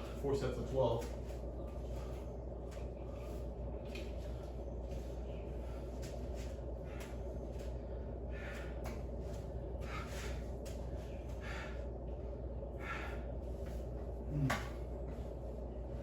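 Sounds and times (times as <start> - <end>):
steady low hum: 0.0 - 16.0
person breathing hard: 5.2 - 15.2.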